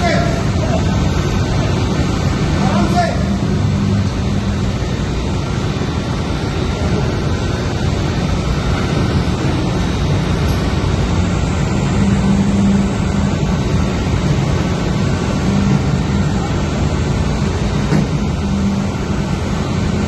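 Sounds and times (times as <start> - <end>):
engine-room machinery drone: 0.0 - 20.0.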